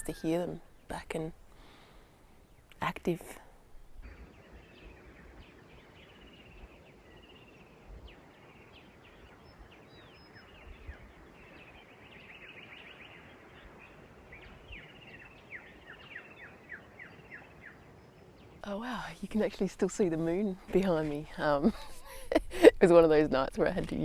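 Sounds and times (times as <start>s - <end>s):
birds chirping and whistling: 4.0s - 18.6s.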